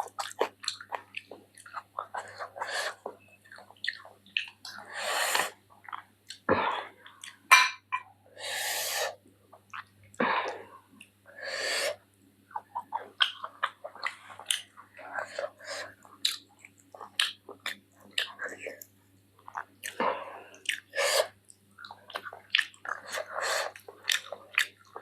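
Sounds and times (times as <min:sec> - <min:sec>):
wet chewing and smacking: 0:00.0 - 0:04.9, 0:05.5 - 0:07.4, 0:09.5 - 0:10.0, 0:12.5 - 0:25.0
breathy mouth sounds: 0:00.0 - 0:07.4.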